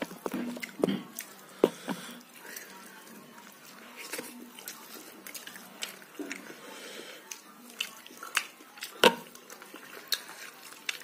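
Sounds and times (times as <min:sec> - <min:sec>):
person chewing and lip smacking: 0:00.0 - 0:06.6, 0:07.2 - 0:11.0.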